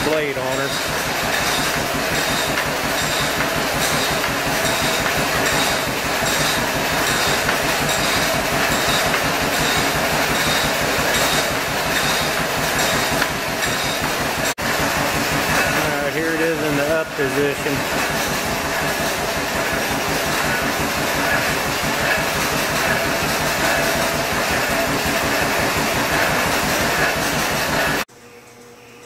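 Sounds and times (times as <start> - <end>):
log saw clattering: 0.0 - 28.0
tractor engine running: 0.0 - 28.1.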